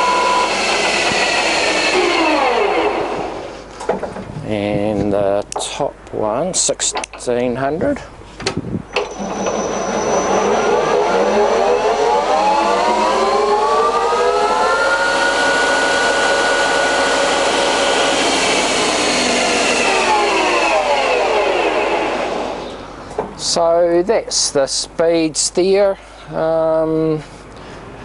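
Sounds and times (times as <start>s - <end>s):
lathe spindle whine: 0.0s - 3.7s, 8.9s - 22.9s.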